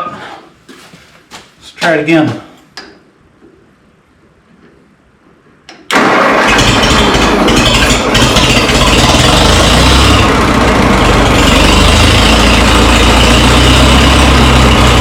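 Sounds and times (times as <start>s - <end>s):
tractor starter cranking engine: 5.9s - 15.0s.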